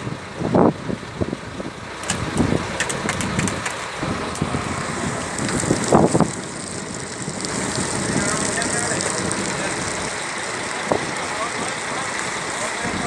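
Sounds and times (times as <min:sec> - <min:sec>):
boat engine running: 0:00.0 - 0:13.0
sharp clicks and knocks: 0:02.0 - 0:04.4.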